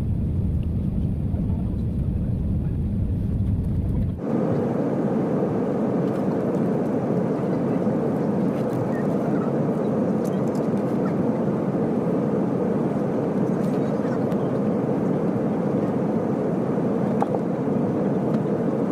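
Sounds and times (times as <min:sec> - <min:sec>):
jet cabin rushing noise: 0:00.0 - 0:18.9.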